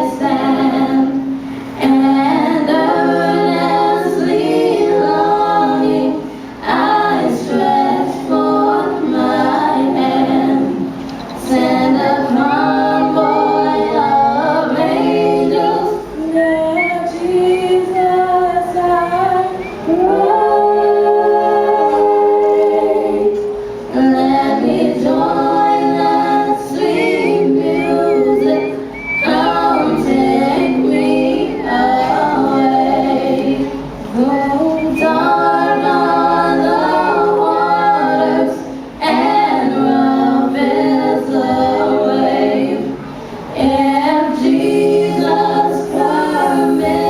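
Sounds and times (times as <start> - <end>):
vocal group singing a cappella: 0.0 - 47.0.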